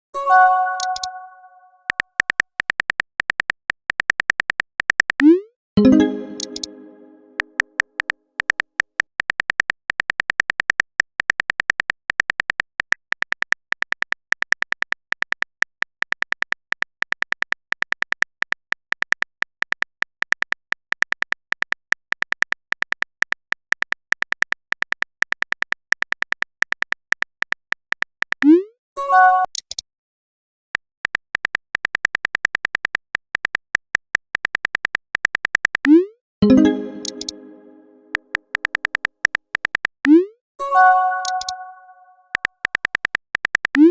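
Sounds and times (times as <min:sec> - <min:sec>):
notification chime: 0:00.2 - 0:01.6, 0:05.8 - 0:07.5, 0:36.4 - 0:38.2, 0:40.6 - 0:42.2
electronic typing clicks: 0:00.6 - 0:11.2, 0:31.2 - 0:43.9.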